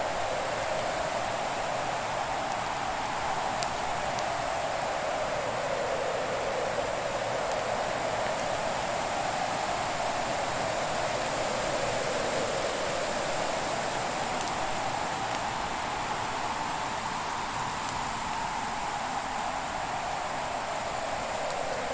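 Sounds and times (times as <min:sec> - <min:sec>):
faint fire crackles: 0:00.0 - 0:21.9
fire burning with rushing hiss: 0:00.0 - 0:21.9.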